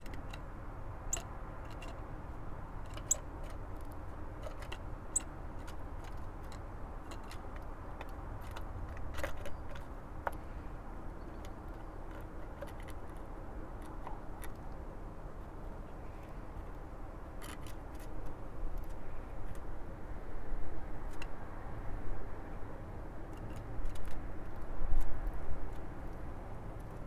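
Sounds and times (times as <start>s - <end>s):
bird pecking clicks and taps: 1.1s - 2.0s, 2.8s - 10.4s, 11.3s - 14.8s.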